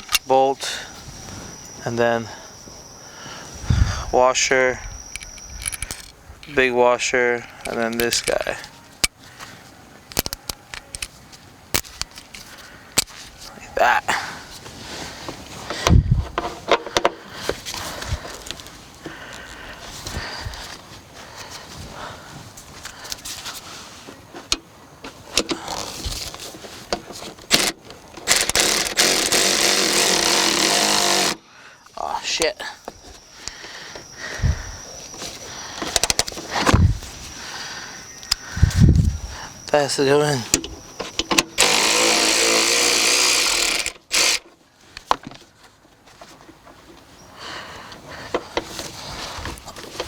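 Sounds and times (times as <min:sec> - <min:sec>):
metal parts clicking and knocking: 0:05.0 - 0:06.6, 0:07.4 - 0:09.2, 0:10.1 - 0:11.2, 0:26.9 - 0:31.4, 0:40.5 - 0:44.6
power tool running: 0:27.5 - 0:31.4, 0:40.6 - 0:44.4.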